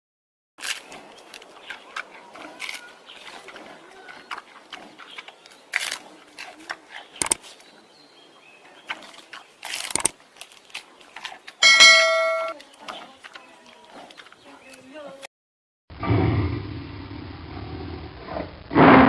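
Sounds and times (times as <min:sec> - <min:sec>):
animal chirps and clicks: 0:01.2 - 0:07.4, 0:08.9 - 0:11.4.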